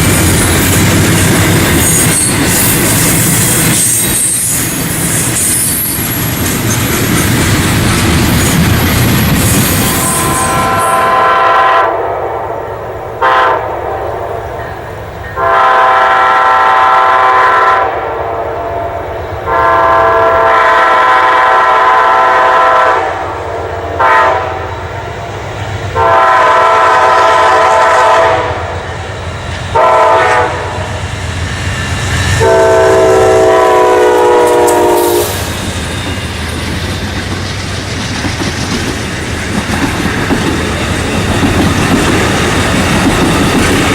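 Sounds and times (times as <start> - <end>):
train rumble and clickety-clack: 0.0 - 43.9
locomotive air horn blasts: 9.9 - 12.6, 13.2 - 14.5, 15.4 - 24.8, 26.0 - 28.8, 29.8 - 30.9, 32.4 - 35.4.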